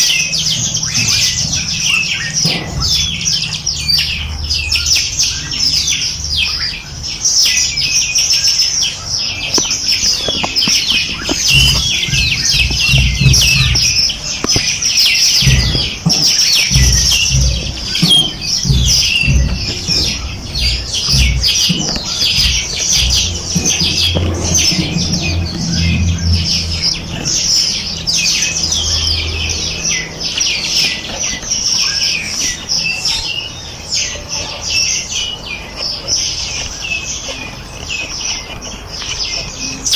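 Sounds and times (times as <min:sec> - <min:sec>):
small birds chirping: 0:00.0 - 0:39.9
low rumble: 0:10.1 - 0:14.8, 0:15.4 - 0:30.4.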